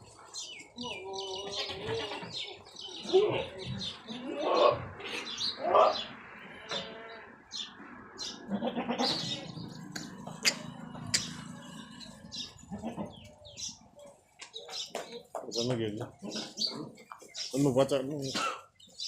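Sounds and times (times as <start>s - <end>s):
small birds chirping: 0.0s - 19.0s
goats bleating: 8.5s - 9.6s, 12.5s - 13.3s.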